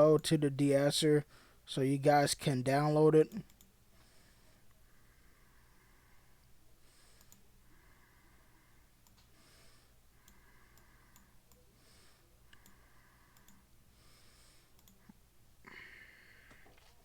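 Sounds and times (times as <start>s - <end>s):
faint mouse clicks: 3.4s - 3.7s, 7.1s - 7.5s, 9.0s - 9.4s, 10.2s - 11.6s, 12.5s - 13.6s, 14.8s - 15.2s.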